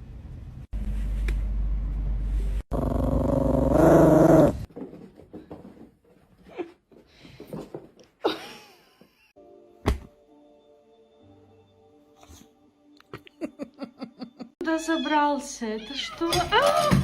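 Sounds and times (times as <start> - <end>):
dog growling: 2.7 - 4.7.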